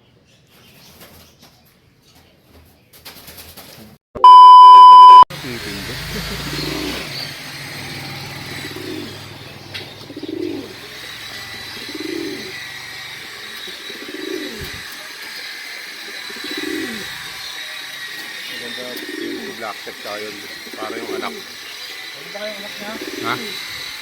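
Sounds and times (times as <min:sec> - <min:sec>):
pigeon cooing: 0:07.9 - 0:17.3, 0:18.1 - 0:21.8, 0:22.7 - 0:23.8.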